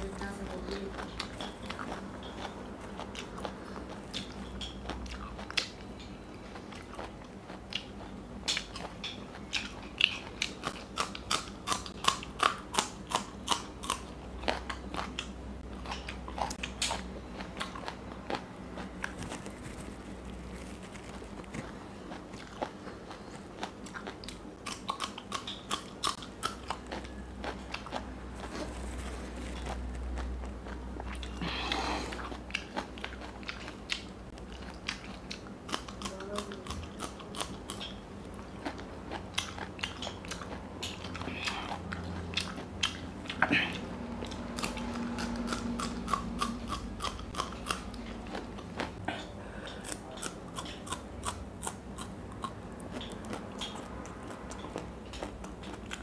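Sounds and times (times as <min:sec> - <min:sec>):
crisp wet chewing crunches: 0:00.4 - 0:49.0, 0:49.6 - 0:56.0.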